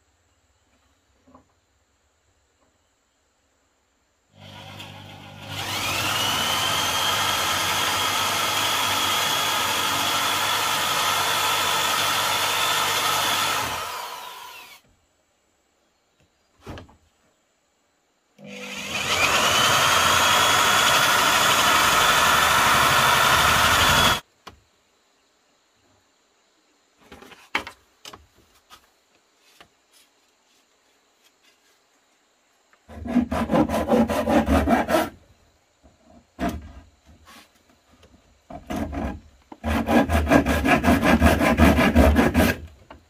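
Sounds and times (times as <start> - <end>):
electric power tool whining: 4.4 - 14.8, 18.4 - 24.2.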